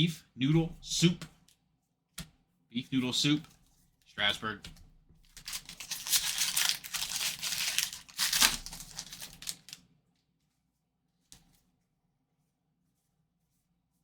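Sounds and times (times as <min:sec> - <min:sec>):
wrapper crinkling and tearing: 0:05.3 - 0:09.8.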